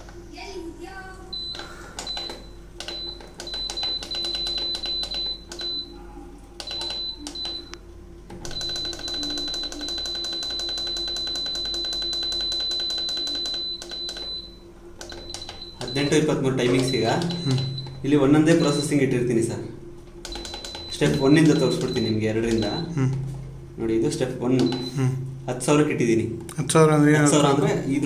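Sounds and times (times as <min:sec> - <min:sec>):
electronic keypad beeping: 0:01.3 - 0:06.0, 0:06.6 - 0:19.2, 0:20.2 - 0:23.0, 0:24.5 - 0:25.2.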